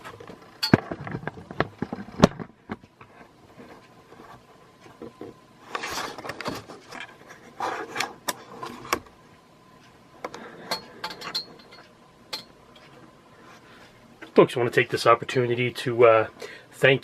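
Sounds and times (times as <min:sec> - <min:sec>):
handling clicks and taps on fan: 0:10.2 - 0:13.1.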